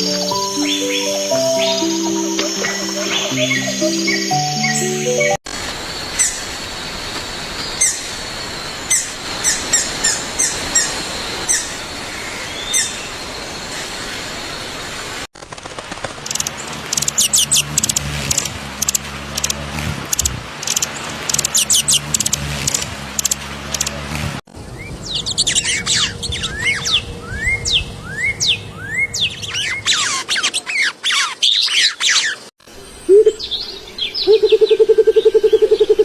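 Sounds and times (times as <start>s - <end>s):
steady high tone: 0.0s - 5.4s
wild birds chirping: 0.0s - 15.3s, 16.2s - 36.0s
rapid high-pitched chirping: 16.3s - 23.9s.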